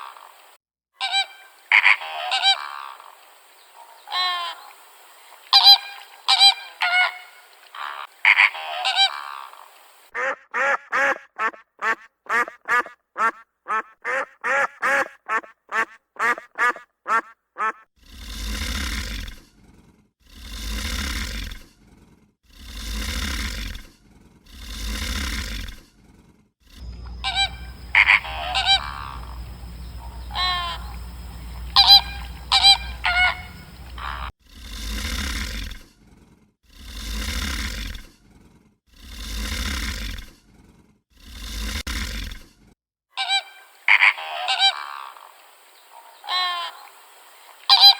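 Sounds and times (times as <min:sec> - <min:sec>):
short pitched animal calls: 0:06.3 - 0:17.8, 0:26.8 - 0:34.3
long rough animal calls: 0:07.8 - 0:18.5, 0:26.6 - 0:35.0
geese honking: 0:10.2 - 0:17.8, 0:26.8 - 0:34.3
steady low hum: 0:26.8 - 0:34.3.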